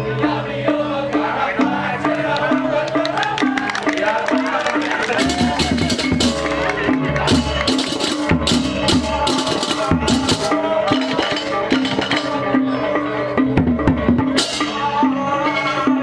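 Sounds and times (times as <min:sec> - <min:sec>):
drums: 0:03.6 - 0:16.0
hand cymbals clashing: 0:05.2 - 0:12.5, 0:14.2 - 0:15.0.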